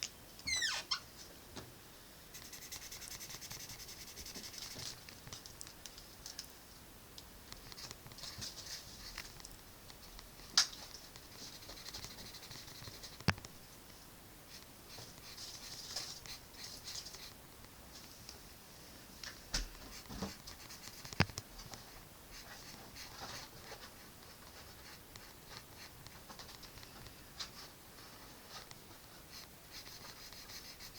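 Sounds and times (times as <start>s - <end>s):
drawing strokes scratching on paper: 2.3s - 4.9s, 11.0s - 13.3s, 19.9s - 21.2s, 29.2s - 30.9s.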